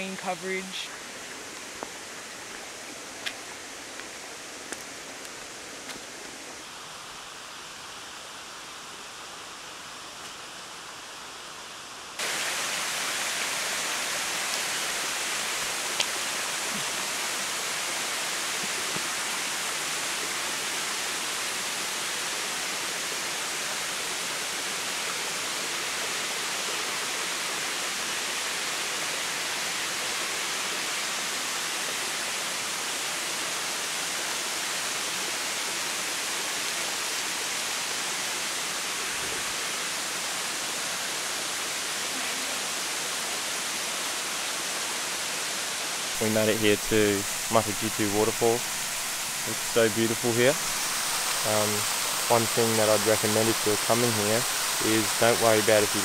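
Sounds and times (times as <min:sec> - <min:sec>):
waterfall rushing: 0:12.2 - 0:56.0.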